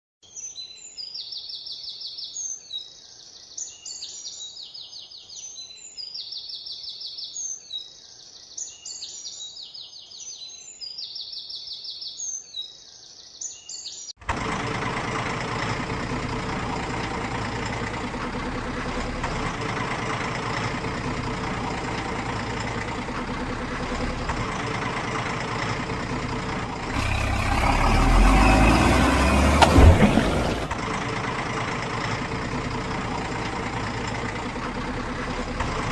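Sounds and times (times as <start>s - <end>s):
truck engine running: 14.2s - 35.9s.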